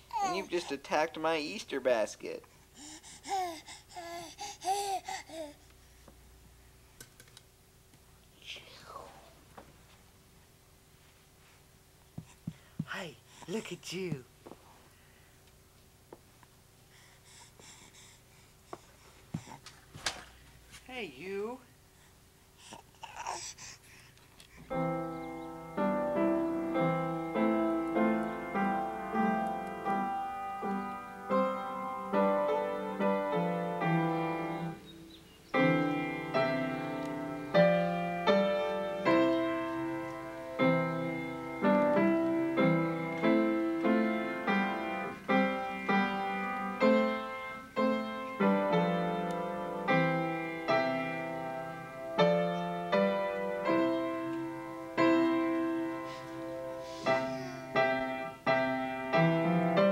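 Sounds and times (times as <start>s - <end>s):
solo piano music: 24.7s - 59.9s.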